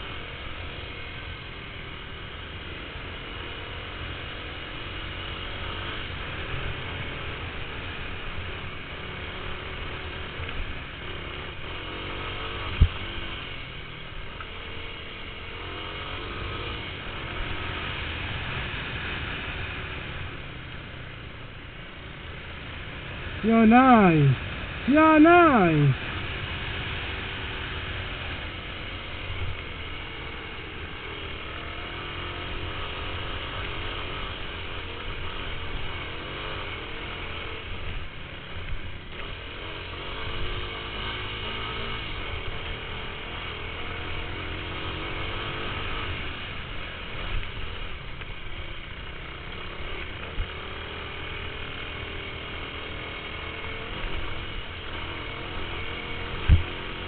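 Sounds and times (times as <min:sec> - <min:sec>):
dirt bike engines revving: 0:22.4 - 0:29.2.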